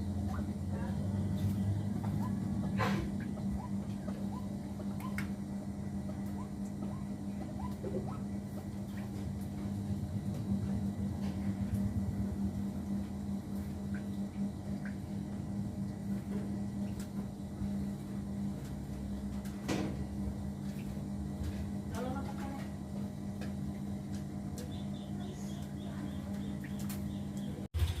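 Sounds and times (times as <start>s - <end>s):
steady low hum: 0.0s - 28.0s
small birds chirping: 24.6s - 27.7s.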